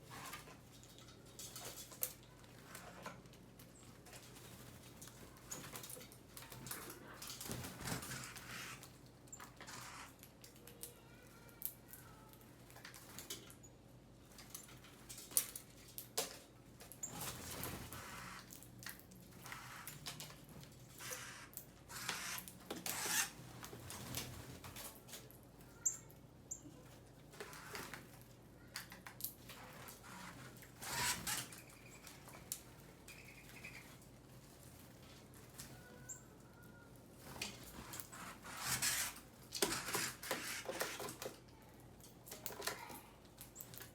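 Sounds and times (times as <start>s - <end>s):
faint bird chirps: 33.1s - 34.0s, 35.7s - 36.9s.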